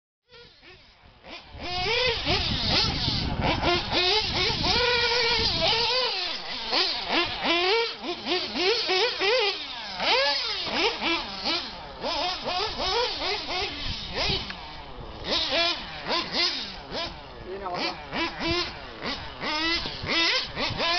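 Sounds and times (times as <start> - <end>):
small engine revving: 0.2 - 20.9.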